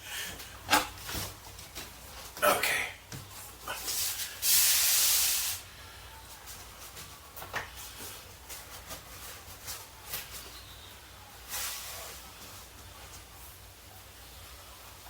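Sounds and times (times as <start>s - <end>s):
hissing bursts: 3.9s - 5.7s.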